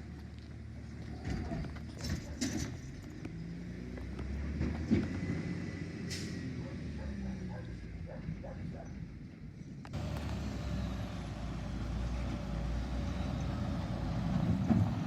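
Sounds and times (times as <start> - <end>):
garbage truck diesel engine: 0.0 - 15.0.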